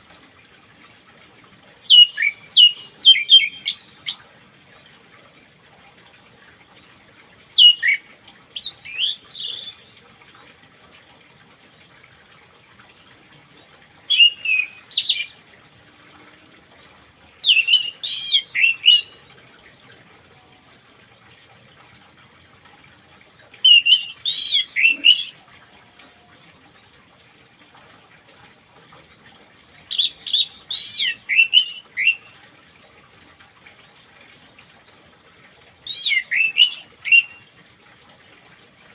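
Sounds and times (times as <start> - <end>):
thrush singing whistled notes: 35.8 - 37.4.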